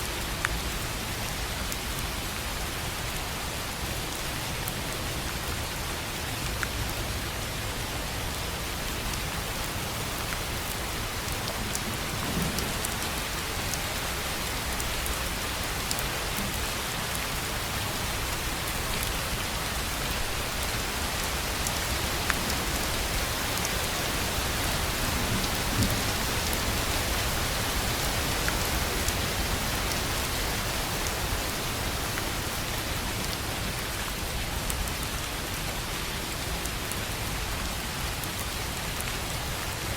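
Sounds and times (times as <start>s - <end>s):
rain on a tin roof: 0.0s - 39.9s.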